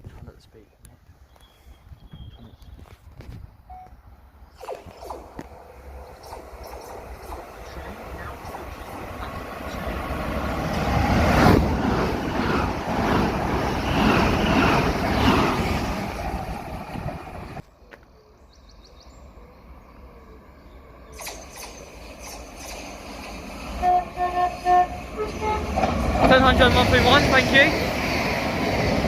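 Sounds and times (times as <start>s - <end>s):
electric train passing at speed: 4.0s - 17.6s, 18.8s - 29.0s.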